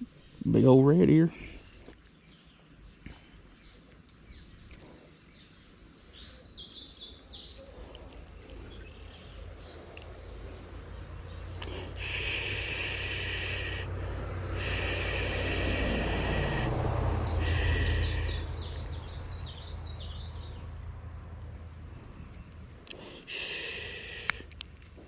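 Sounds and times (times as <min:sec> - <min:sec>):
bird chirping song: 0:00.0 - 0:20.9
passing vehicle rumble: 0:07.7 - 0:25.0.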